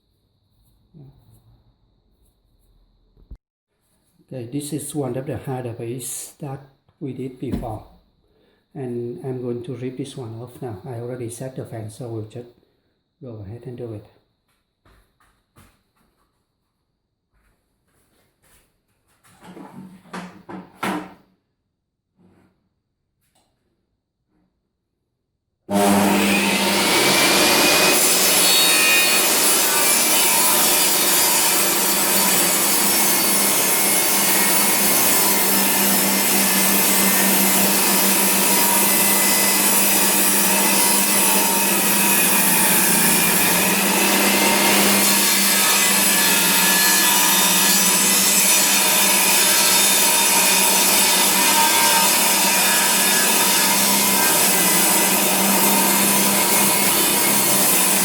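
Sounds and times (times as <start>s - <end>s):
table saw ripping a board: 25.7s - 58.0s.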